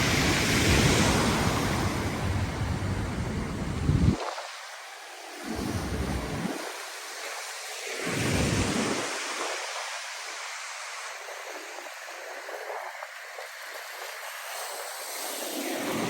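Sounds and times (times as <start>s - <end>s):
waves washing onto shore: 0.0s - 16.0s.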